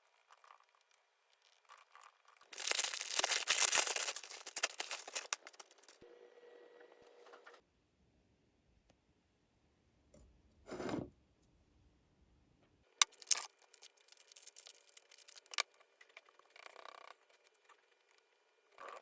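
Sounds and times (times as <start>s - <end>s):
sharp clicks and rustling: 2.6s - 6.0s.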